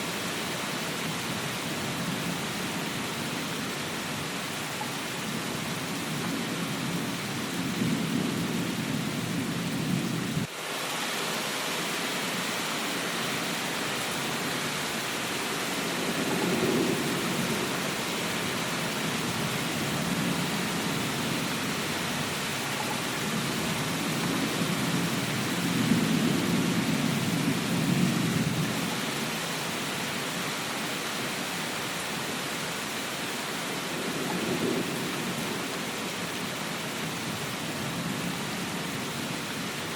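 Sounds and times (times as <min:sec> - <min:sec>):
heavy rain hiss: 0:00.0 - 0:39.9
rolling thunder rumbles: 0:05.2 - 0:10.5, 0:15.7 - 0:22.6, 0:23.2 - 0:28.9, 0:33.9 - 0:36.0.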